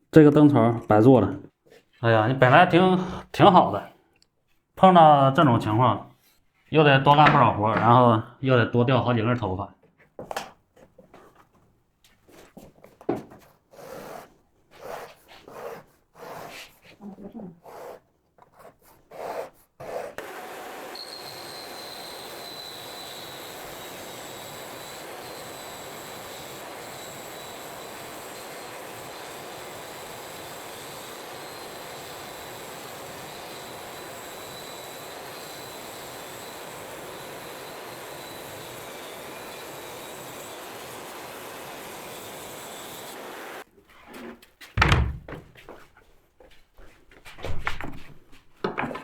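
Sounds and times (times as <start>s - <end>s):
power tool motor whining: 19.8s - 43.6s.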